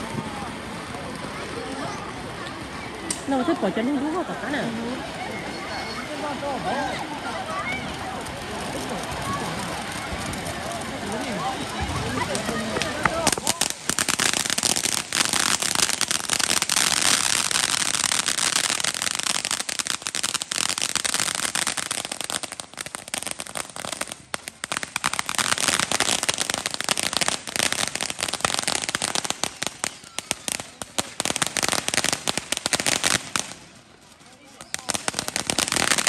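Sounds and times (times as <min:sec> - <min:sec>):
firecrackers popping and crackling: 0:00.0 - 0:36.0.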